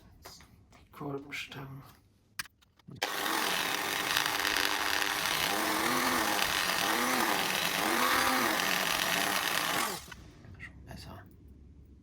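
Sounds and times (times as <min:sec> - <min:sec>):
small power tool running: 0:03.0 - 0:10.2.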